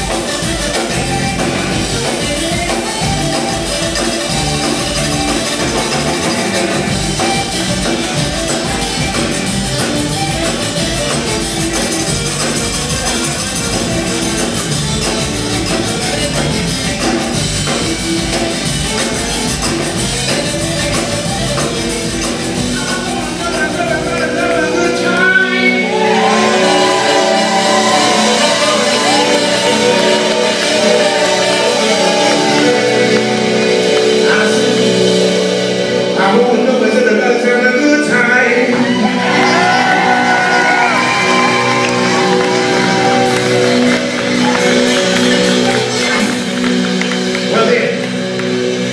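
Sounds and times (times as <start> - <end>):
live band playing: 0.0 - 48.9
person singing: 22.6 - 46.6.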